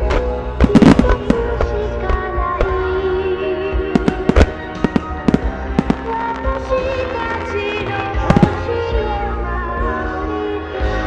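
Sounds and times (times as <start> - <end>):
music: 0.0 - 11.0
firework shells bursting: 0.6 - 1.7, 4.0 - 7.4, 8.2 - 8.7.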